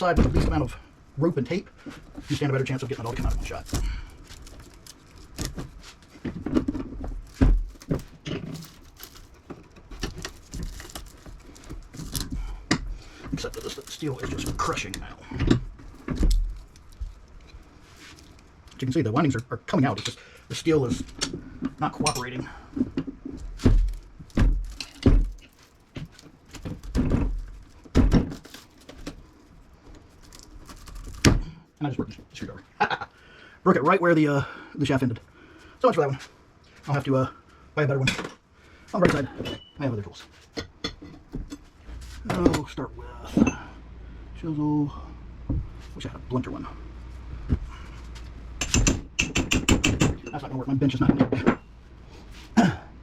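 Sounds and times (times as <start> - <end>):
hammer striking metal punch: 48.6 - 50.3
screwdriver knocking and scraping metal: 48.6 - 50.4.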